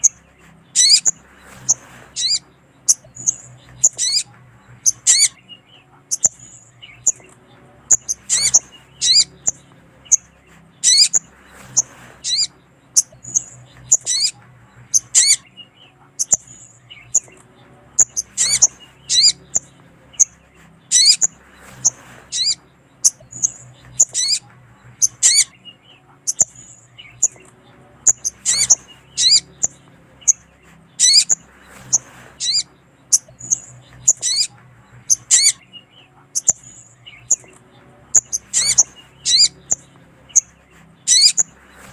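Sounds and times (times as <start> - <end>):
bird chirping: 0.0 - 41.9.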